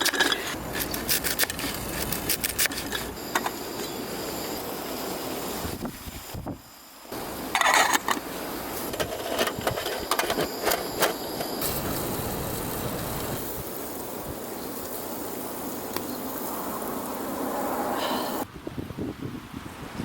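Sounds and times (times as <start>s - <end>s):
strong wind blowing: 5.4s - 6.7s, 11.6s - 20.0s.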